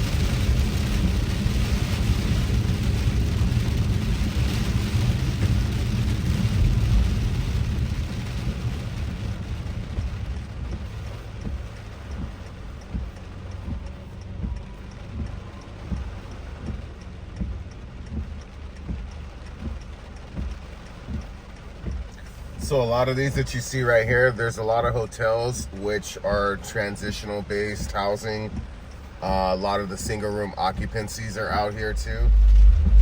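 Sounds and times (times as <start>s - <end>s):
road and rain rumble: 0.0s - 33.0s
soft regular thumps: 5.4s - 23.6s, 24.7s - 33.0s.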